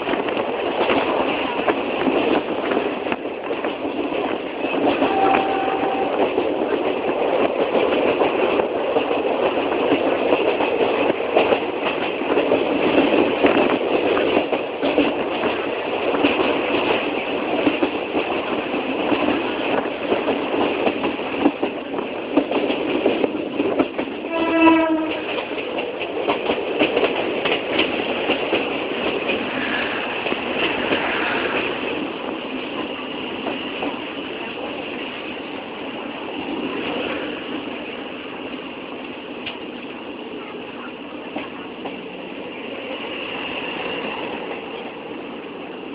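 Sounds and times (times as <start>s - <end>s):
train clattering on rails: 0.0s - 45.9s
train horn blast: 5.0s - 6.3s, 24.3s - 25.4s.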